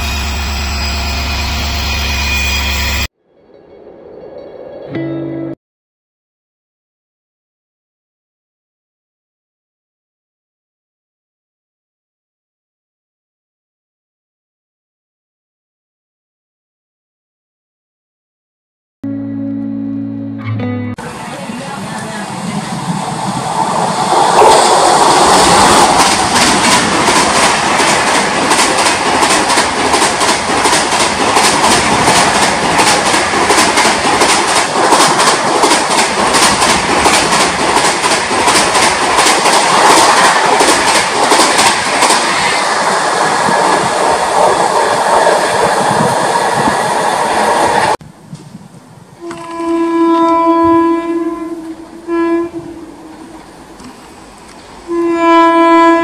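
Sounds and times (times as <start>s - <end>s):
train passing at speed: 0.0s - 4.9s, 21.0s - 49.2s, 50.0s - 56.0s
locomotive horn blasts: 49.2s - 53.4s, 54.9s - 56.0s.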